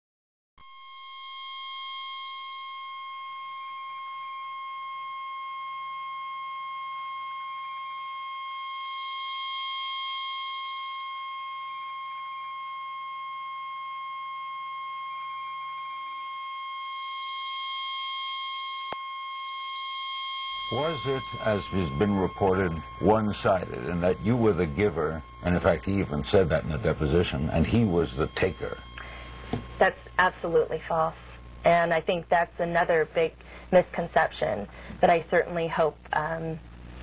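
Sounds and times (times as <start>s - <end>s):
high-pitched synthesizer drone: 15.3s - 31.4s.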